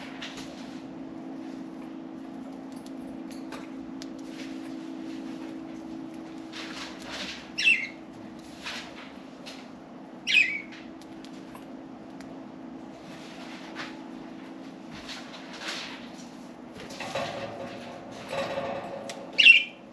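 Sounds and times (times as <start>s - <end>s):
budgerigars chirping: 7.6s - 8.0s, 10.3s - 10.7s, 19.4s - 19.7s.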